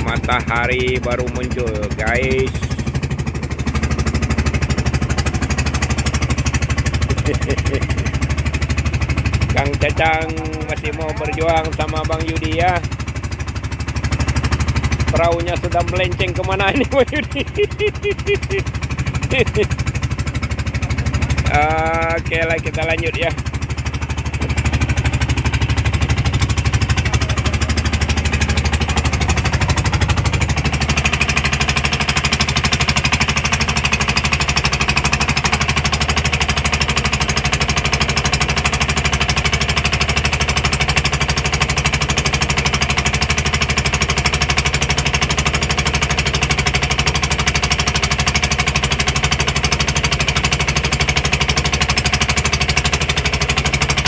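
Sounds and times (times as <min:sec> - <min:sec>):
boat engine chugging: 0:00.0 - 0:54.0.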